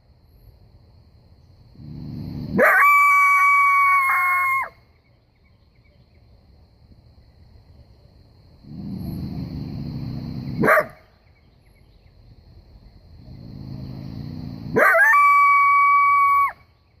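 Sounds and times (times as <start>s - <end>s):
coyote growling and howling: 1.7s - 4.8s, 8.6s - 10.9s, 13.2s - 16.6s.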